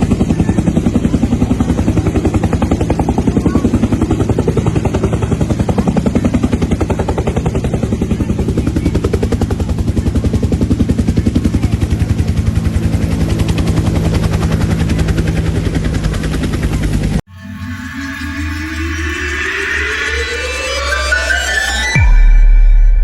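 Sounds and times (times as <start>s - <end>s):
helicopter engine hum: 0.0s - 22.0s
helicopter rotor chopping: 0.0s - 22.0s.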